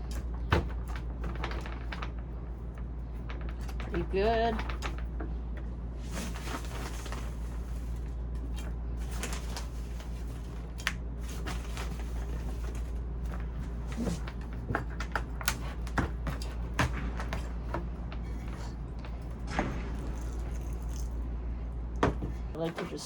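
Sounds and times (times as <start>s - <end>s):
steady low hum: 0.0s - 23.0s
plant pots and soil handled: 5.6s - 19.0s, 22.0s - 23.0s.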